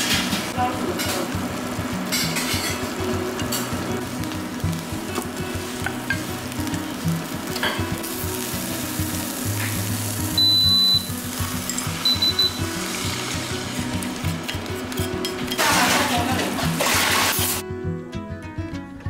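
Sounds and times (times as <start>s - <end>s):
chicken sizzling in oil: 0.0s - 17.6s
high electronic beep: 10.4s - 11.2s, 12.0s - 12.7s.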